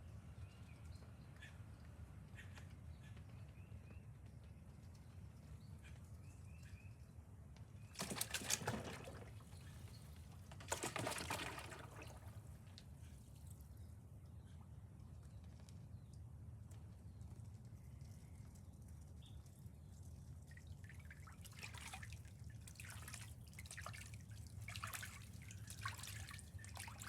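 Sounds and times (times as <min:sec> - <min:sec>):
ducks splashing in water: 0:08.0 - 0:12.6, 0:20.7 - 0:27.0.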